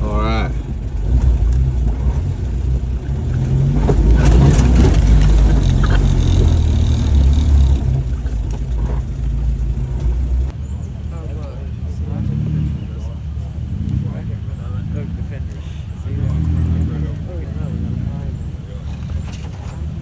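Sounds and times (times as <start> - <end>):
rattles and knocks: 0.0 - 10.5, 18.8 - 20.0
car engine accelerating: 0.0 - 20.0.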